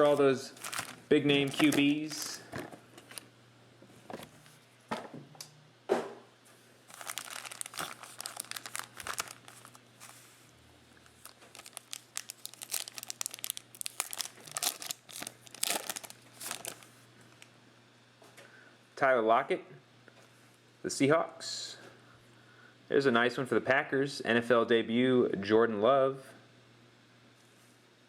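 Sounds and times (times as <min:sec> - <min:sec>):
wrappers being torn and crinkled: 0:00.0 - 0:02.4, 0:06.9 - 0:10.2, 0:11.0 - 0:17.5.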